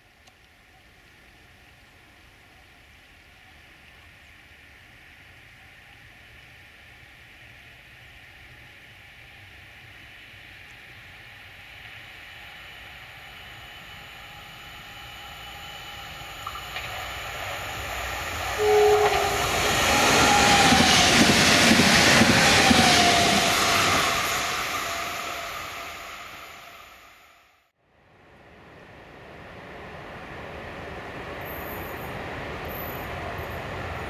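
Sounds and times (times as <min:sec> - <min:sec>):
train wheels rushing on rails: 0:10.3 - 0:27.4, 0:29.2 - 0:34.0
brief tone: 0:18.6 - 0:19.4.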